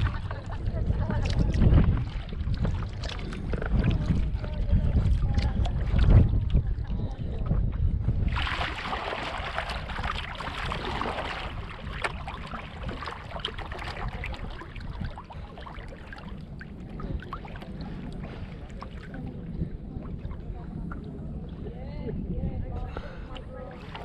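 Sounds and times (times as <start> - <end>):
kayak paddle splashing water: 0.0 - 6.6, 8.2 - 21.6, 23.2 - 24.0
low wind rumble on microphone: 0.0 - 24.0
water dripping off paddle blade: 8.4 - 21.5.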